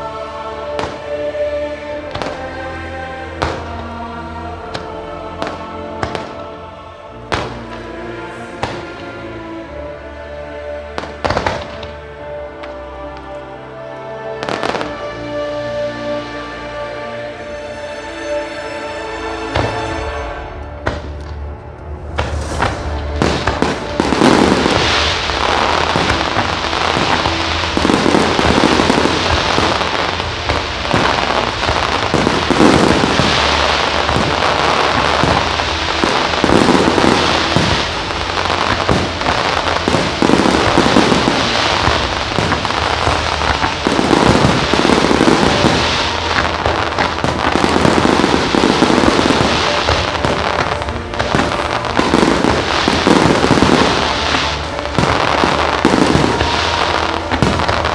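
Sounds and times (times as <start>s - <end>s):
fireworks crackling: 0.0s - 9.4s, 11.0s - 17.0s, 19.5s - 57.9s
firework shells booming: 20.8s - 57.9s.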